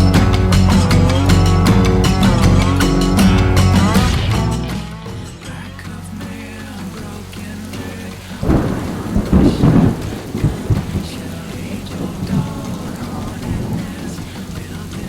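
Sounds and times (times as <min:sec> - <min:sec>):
wind and water rushing: 0:06.1 - 0:15.0.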